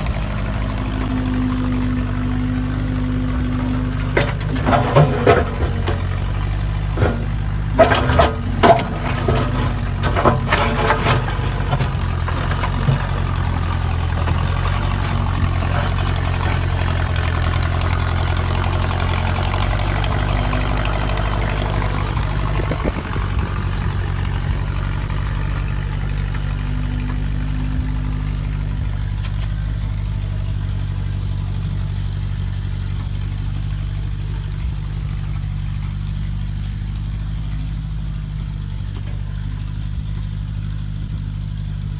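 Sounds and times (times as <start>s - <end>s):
backhoe engine running: 0.0s - 41.9s
sharp metal clanks and knocks: 0.2s - 27.4s.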